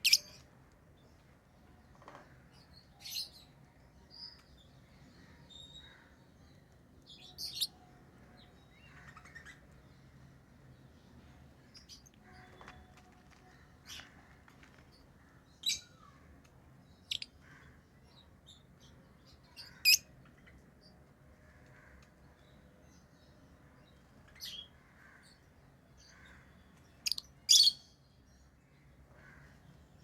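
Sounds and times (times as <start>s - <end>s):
lovebirds chirping: 0.0s - 0.4s, 16.9s - 20.6s.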